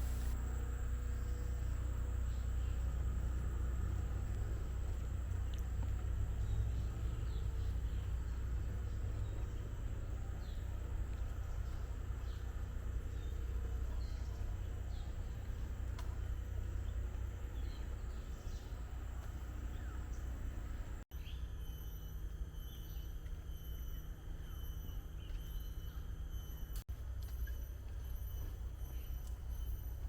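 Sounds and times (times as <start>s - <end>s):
low constant rumble: 0.0s - 30.0s
faint bird chirps: 6.4s - 30.0s.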